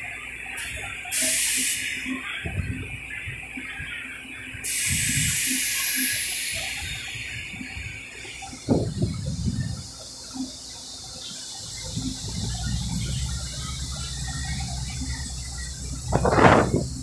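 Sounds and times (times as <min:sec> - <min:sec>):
compressed air hissing: 0:00.6 - 0:02.2, 0:04.6 - 0:09.9
low thuds: 0:15.9 - 0:17.0.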